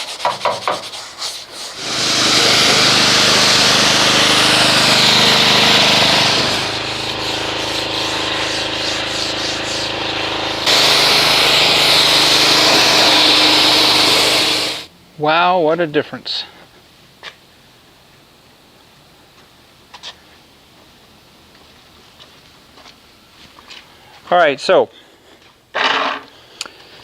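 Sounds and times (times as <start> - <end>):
brush scrubbing car paint: 0.0 - 14.9
pressure washer spraying: 0.3 - 14.9.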